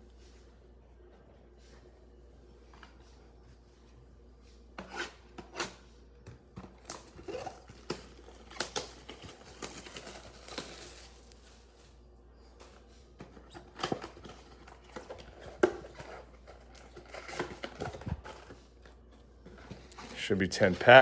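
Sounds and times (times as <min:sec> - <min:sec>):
plastic wrapping crinkling: 0:07.4 - 0:12.0
cardboard ripping: 0:08.4 - 0:11.4.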